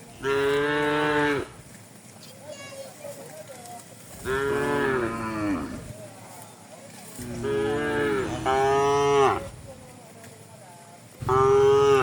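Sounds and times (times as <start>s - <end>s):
cow mooing: 4.2s - 5.8s, 7.2s - 9.5s, 11.2s - 12.0s.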